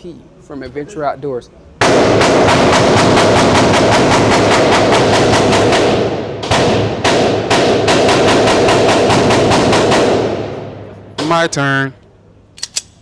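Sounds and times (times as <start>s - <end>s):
rapid gunfire: 1.8s - 10.4s.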